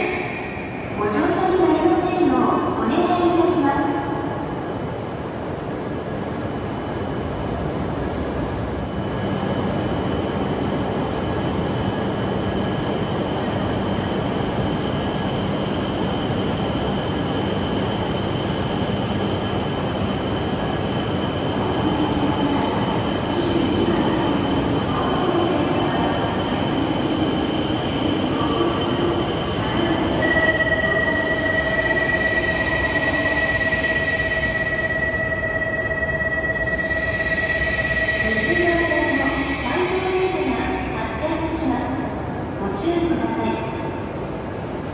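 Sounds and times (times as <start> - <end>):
train running noise: 0.0 - 44.9
high whining tones: 13.2 - 40.0.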